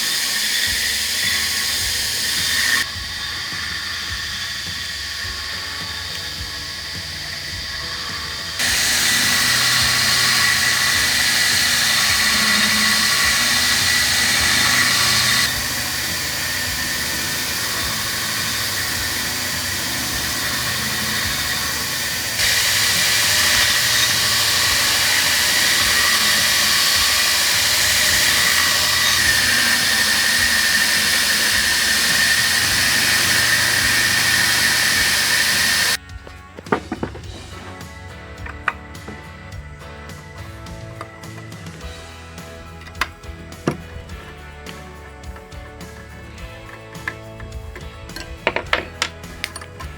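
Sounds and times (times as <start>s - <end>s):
machine whining over hiss: 0.0s - 36.0s.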